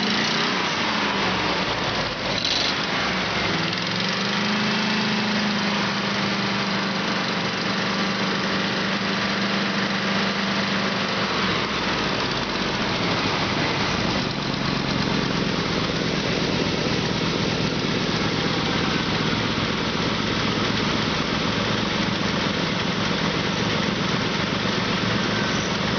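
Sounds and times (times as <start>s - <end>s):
truck engine idling: 5.2s - 25.9s.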